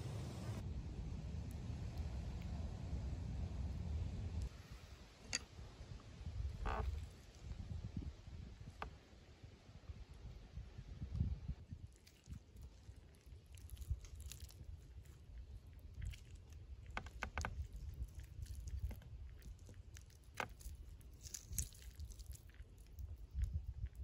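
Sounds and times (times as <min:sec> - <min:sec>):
person chewing and crunching: 0:11.8 - 0:24.0.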